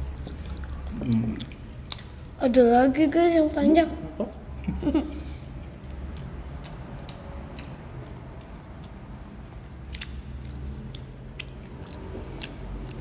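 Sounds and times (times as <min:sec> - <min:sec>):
chewing fries: 0:00.0 - 0:02.4, 0:05.6 - 0:13.0
low steady hum: 0:00.0 - 0:13.0
mouth clicks and smacks: 0:05.8 - 0:13.0.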